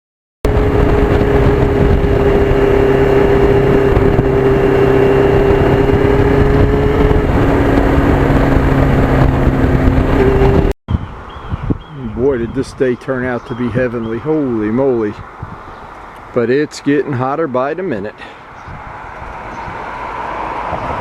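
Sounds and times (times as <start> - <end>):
rushing wind noise: 0.4 - 16.4, 18.4 - 21.0
motorcycle engine cruising: 0.5 - 10.8.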